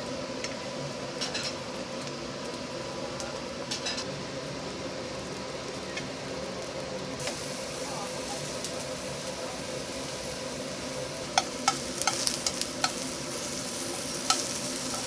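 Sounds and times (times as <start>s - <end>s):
eggplant frying in hot oil: 0.0s - 15.0s
metal clicking against pans: 1.2s - 1.6s, 11.4s - 13.0s, 14.2s - 15.0s.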